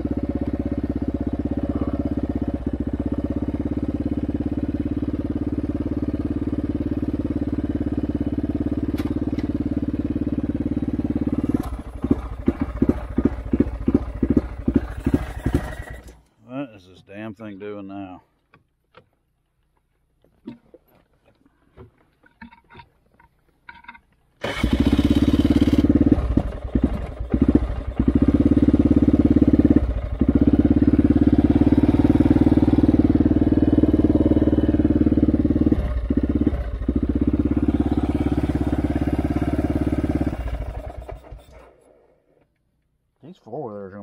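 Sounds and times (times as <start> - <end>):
engine running unevenly: 0.0 - 16.2, 24.4 - 41.8.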